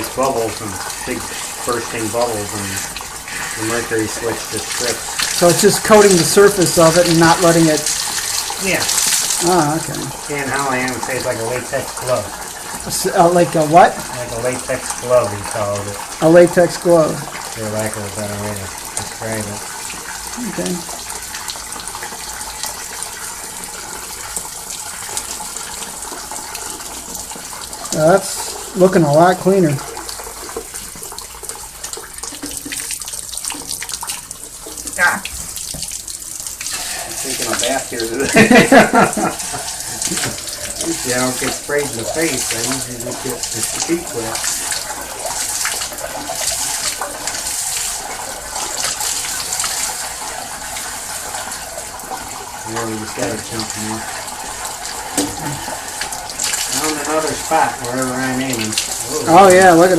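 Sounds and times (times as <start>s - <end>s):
water rushing from a hose: 0.0s - 59.9s
water splashing: 0.0s - 59.9s
water spraying from a wand: 36.6s - 51.3s.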